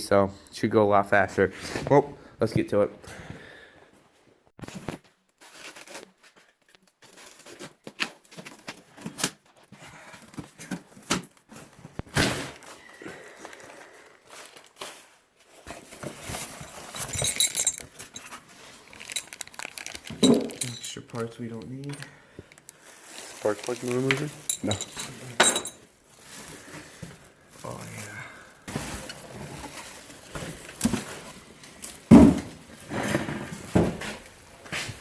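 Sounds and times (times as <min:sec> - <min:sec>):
metallic clinking: 0:16.6 - 0:18.4, 0:19.0 - 0:21.0, 0:24.3 - 0:25.8
metal tools knocking and clicking: 0:17.0 - 0:18.3, 0:20.2 - 0:21.0, 0:24.5 - 0:25.8.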